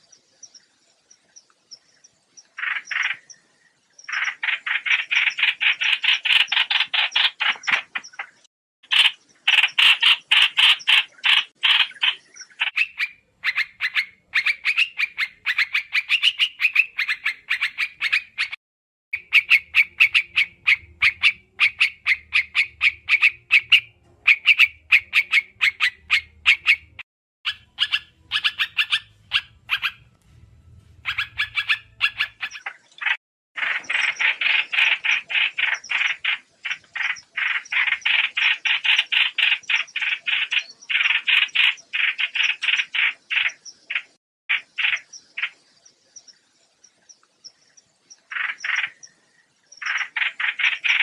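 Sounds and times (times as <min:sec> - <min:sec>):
bird chirping calls: 0:00.0 - 0:18.6, 0:19.2 - 0:51.0
faint low hum: 0:28.1 - 0:32.4.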